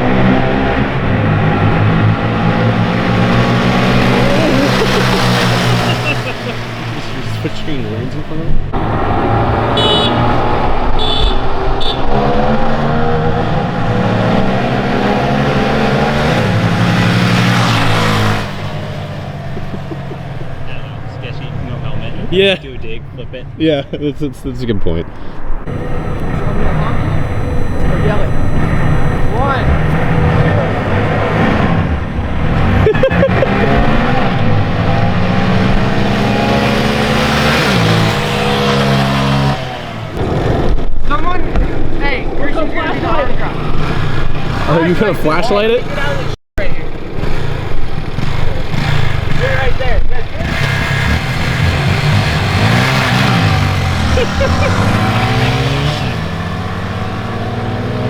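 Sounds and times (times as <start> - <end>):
engine accelerating hard: 0.0 - 22.8, 25.6 - 58.0
short high-pitched beeps: 25.7 - 32.9.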